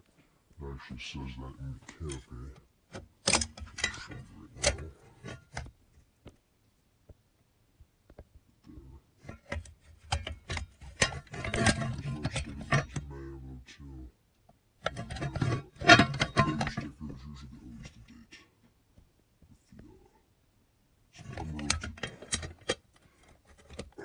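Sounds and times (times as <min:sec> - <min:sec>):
handling clicks and knocks: 0:02.9 - 0:06.4, 0:09.2 - 0:13.0, 0:14.4 - 0:16.9, 0:21.3 - 0:24.0
rubbing and knocking: 0:14.8 - 0:17.0.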